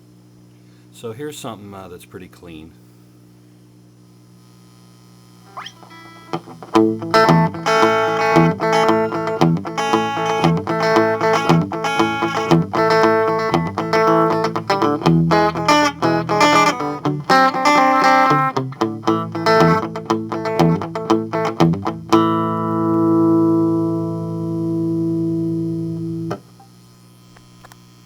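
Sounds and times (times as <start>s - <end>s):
clean electric guitar: 5.5s - 26.7s.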